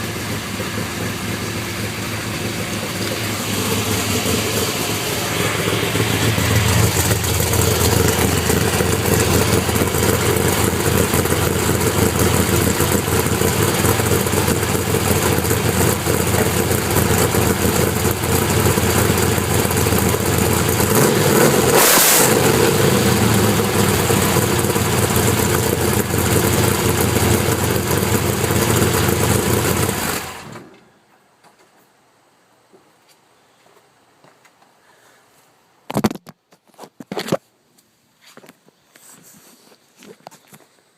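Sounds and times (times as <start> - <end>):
car engine idling loudly: 0.0 - 30.6
engine revving: 0.0 - 30.6.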